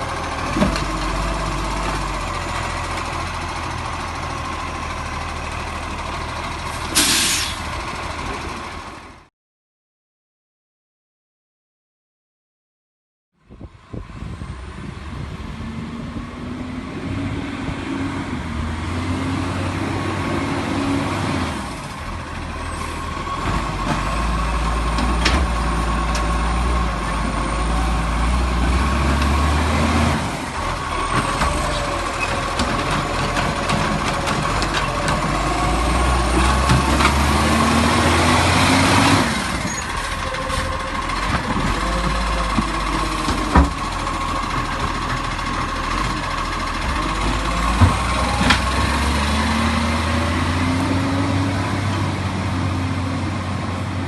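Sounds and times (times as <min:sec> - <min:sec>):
truck engine revving: 0:14.2 - 0:54.0.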